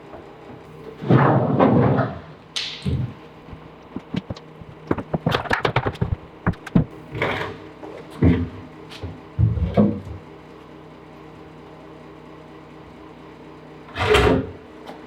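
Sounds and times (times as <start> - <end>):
sharp clicks and knocks: 2.6 - 7.0
dull thumps: 2.8 - 7.0.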